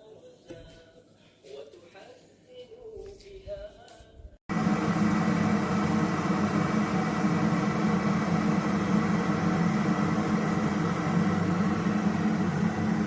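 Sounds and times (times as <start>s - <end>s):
electric kettle rumble and hiss: 4.5s - 13.0s.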